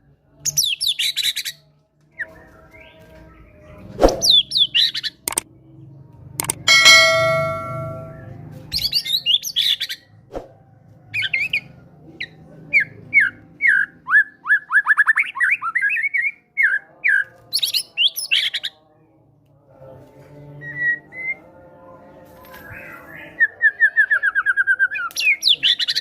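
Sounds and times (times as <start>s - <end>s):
loud ringing tone: 6.4s - 8.2s.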